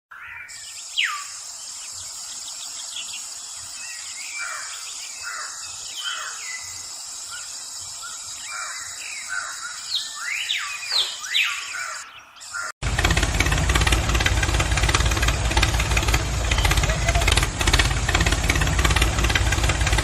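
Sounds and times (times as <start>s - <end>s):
birds chirping and whistling: 0.1s - 12.8s
steady high-pitched hiss: 0.5s - 10.4s
loud falling bird call: 8.5s - 20.0s.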